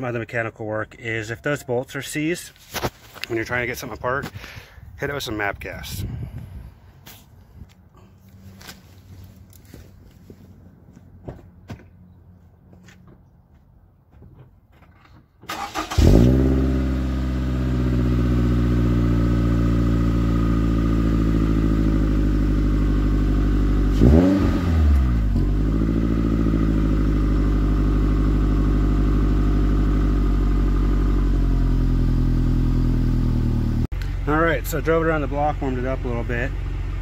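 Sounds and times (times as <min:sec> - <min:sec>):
car engine starting and idling: 0:15.1 - 0:37.0.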